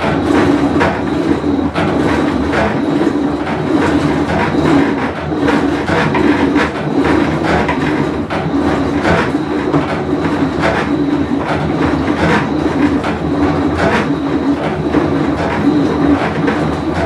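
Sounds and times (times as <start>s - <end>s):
washing machine rumbling and rattling: 0.0s - 17.0s.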